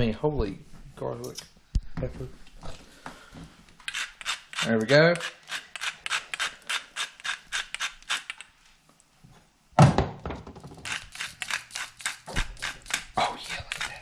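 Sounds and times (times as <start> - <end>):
spice grinder rasping: 3.9 - 8.4, 10.8 - 14.0.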